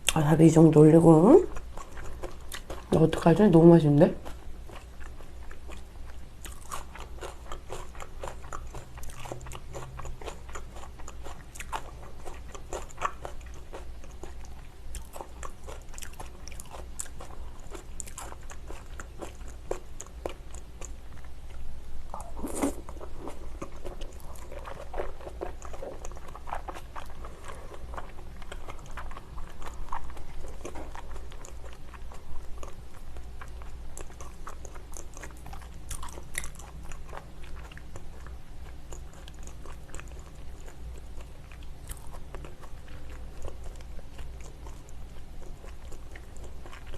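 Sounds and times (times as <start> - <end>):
person chewing and biting food: 1.5 - 2.9, 4.2 - 46.9.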